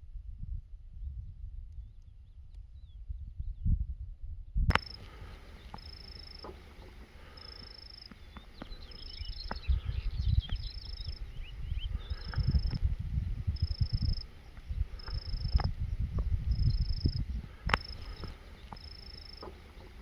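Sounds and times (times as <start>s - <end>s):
low wind rumble on microphone: 0.0s - 20.0s
short chirping calls: 4.7s - 20.0s.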